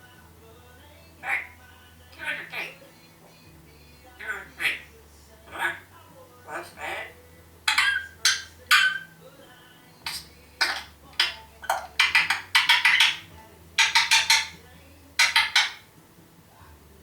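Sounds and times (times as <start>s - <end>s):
parrot babbling: 1.2s - 1.6s, 2.2s - 2.9s, 4.2s - 4.9s, 5.5s - 5.9s, 6.5s - 9.2s, 10.0s - 14.6s, 15.2s - 15.9s.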